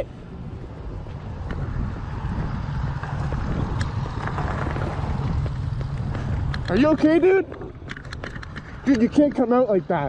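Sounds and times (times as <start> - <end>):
wind buffeting microphone: 0.0 - 10.0
motorcycle engine running: 1.5 - 8.2.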